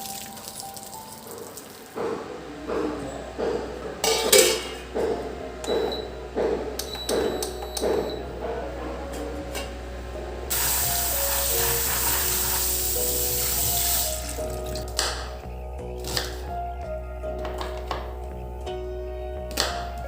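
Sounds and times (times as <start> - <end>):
water running from a tap: 0.0 - 2.0, 10.5 - 14.8
background music: 0.0 - 20.0.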